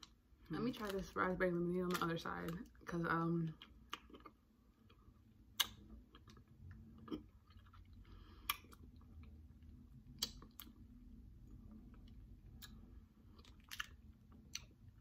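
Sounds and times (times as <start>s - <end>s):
faint chewing: 3.5s - 10.8s, 11.5s - 15.0s
wet mouth clicks and smacks: 5.5s - 6.4s, 10.1s - 10.8s.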